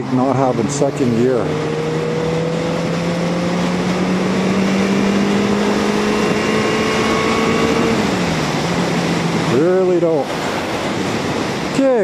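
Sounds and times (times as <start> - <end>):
motorcycle engine running: 0.0 - 9.6
wind rushing: 0.0 - 12.0.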